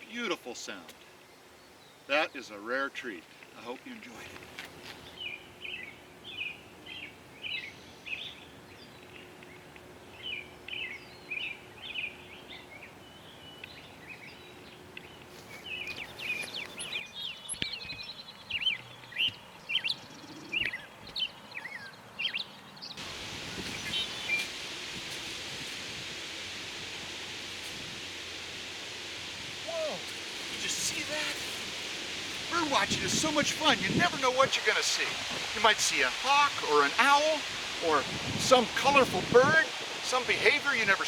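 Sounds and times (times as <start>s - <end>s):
bird singing: 5.0s - 24.5s
rushing hiss: 23.0s - 41.0s.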